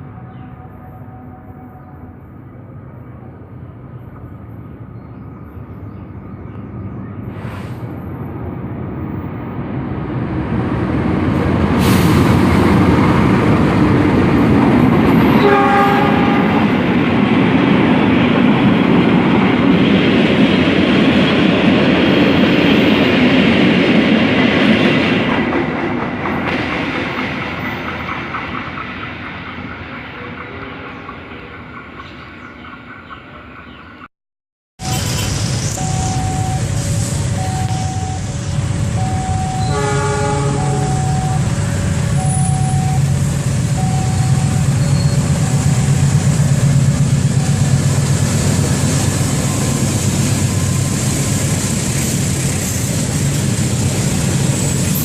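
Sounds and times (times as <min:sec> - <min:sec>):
train horn: 0:00.0 - 0:02.3, 0:15.3 - 0:16.9, 0:39.4 - 0:41.5
train passing: 0:00.0 - 0:34.1, 0:34.8 - 0:55.0.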